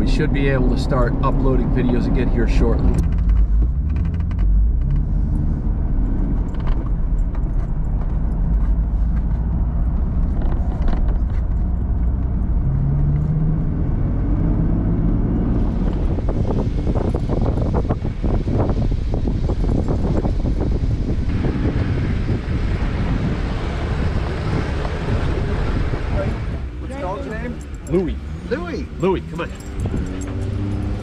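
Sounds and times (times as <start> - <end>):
vehicle engine rumbling: 0.0 - 31.0
clicks and rattles: 2.9 - 5.1.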